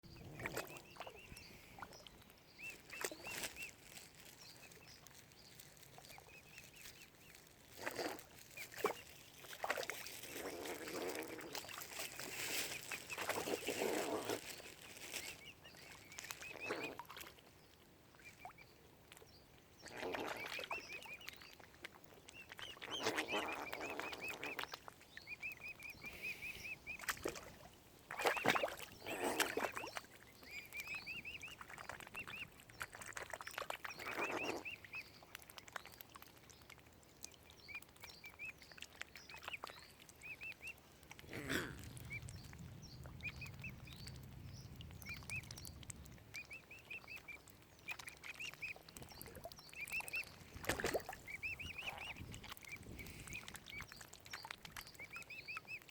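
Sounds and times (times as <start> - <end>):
cygnets peeping: 0.1 - 17.1, 28.1 - 35.2, 37.6 - 55.9.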